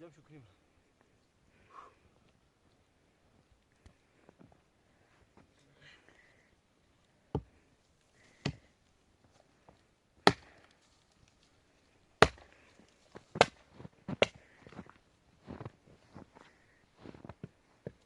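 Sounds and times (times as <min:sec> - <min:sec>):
sharp chopping blows: 0:10.2 - 0:10.6, 0:12.2 - 0:12.5.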